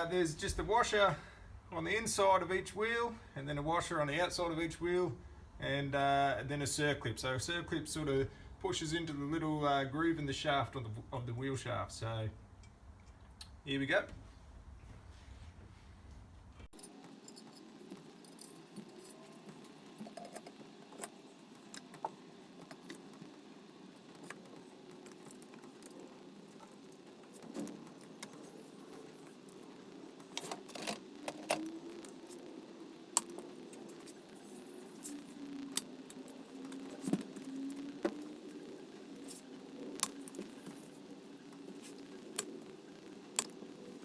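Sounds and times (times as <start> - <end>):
faint steady hum: 0.0 - 44.0
small metal parts clinking: 16.8 - 19.4.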